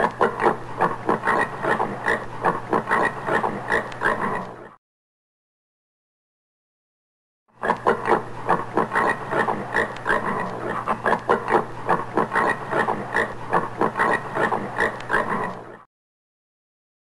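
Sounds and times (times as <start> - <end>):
steady low hum: 0.0 - 4.8, 7.8 - 15.9.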